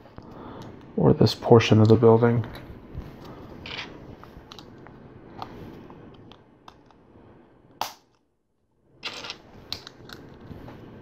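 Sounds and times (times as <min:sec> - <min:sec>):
plastic pieces clattering: 0:09.0 - 0:10.2.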